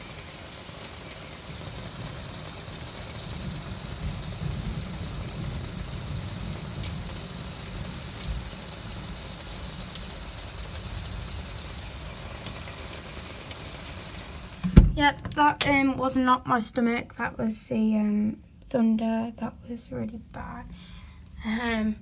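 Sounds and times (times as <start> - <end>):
heavy rain pouring: 0.0 - 16.3
thunder rumbling: 3.1 - 9.1.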